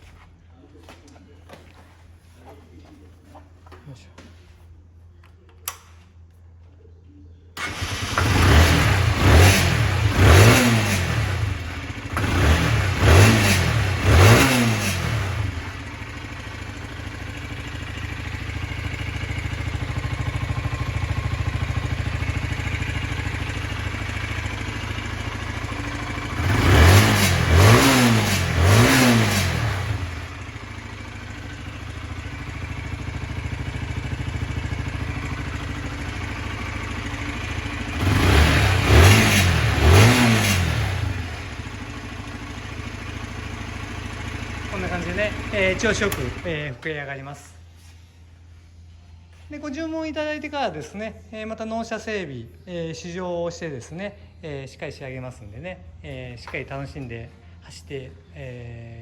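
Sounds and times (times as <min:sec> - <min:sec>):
motorcycle engine revving and idling: 0:07.6 - 0:46.8.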